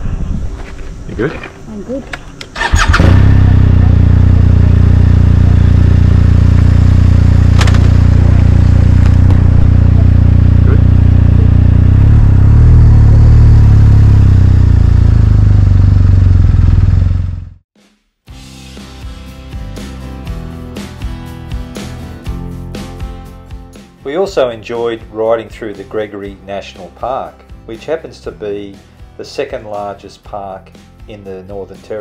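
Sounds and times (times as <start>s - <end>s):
motorcycle engine running: 2.5s - 17.6s.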